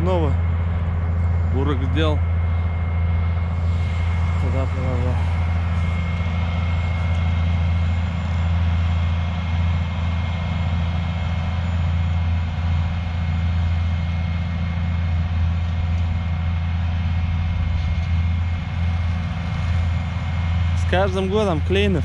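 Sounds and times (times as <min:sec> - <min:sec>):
thin high whine: 0:00.0 - 0:09.9
diesel engine droning: 0:00.0 - 0:22.0.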